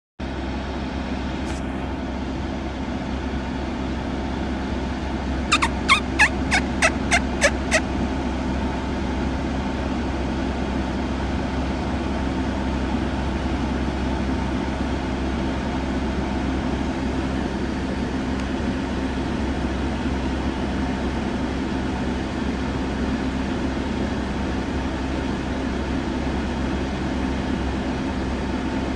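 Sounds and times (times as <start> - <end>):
turkey gobbling: 5.5 - 7.8.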